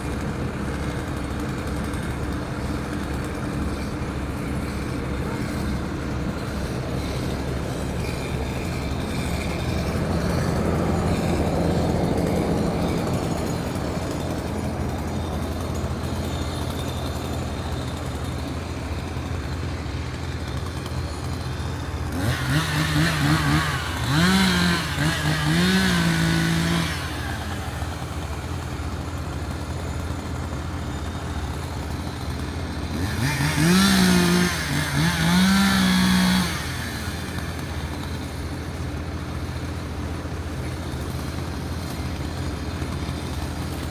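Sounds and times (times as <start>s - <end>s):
engine revving: 0.0s - 43.9s
engine-powered equipment droning: 0.0s - 43.9s.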